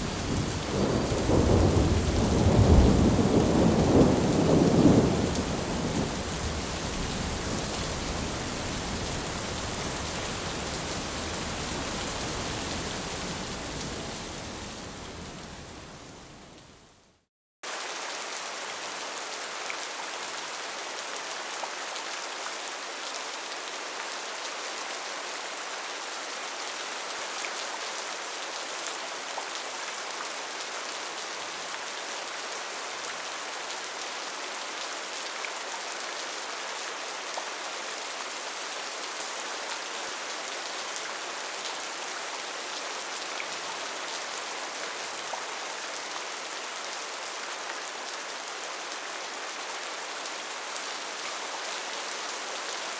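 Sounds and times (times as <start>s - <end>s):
rain hissing on tin roof: 0.0s - 14.2s.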